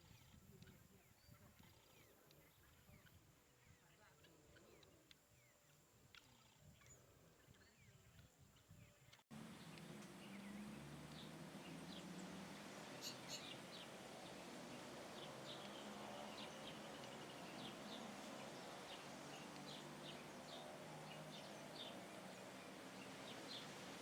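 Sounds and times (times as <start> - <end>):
birds chirping: 8.8 - 24.0.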